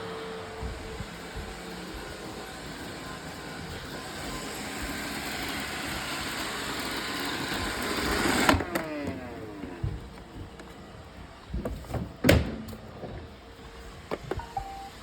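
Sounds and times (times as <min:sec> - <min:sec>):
robot vacuum motor running: 0:00.0 - 0:10.3.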